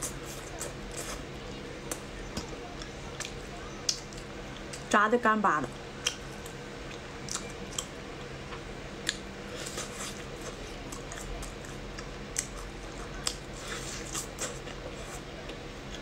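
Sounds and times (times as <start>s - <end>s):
faint steady hum: 0.0s - 16.0s
crunchy chewing: 5.8s - 8.0s, 9.0s - 16.0s.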